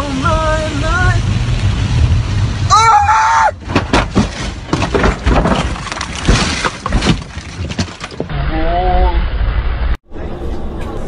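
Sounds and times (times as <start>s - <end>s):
car crash bangs: 3.6s - 8.3s
debris clattering: 3.6s - 8.3s
glass breaking: 3.7s - 8.3s.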